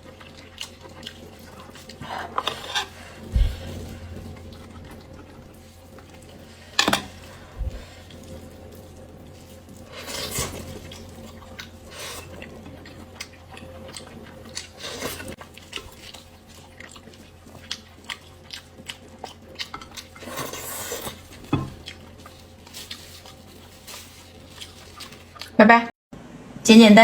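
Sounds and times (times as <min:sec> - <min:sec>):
biting and chewing: 0:09.8 - 0:25.6.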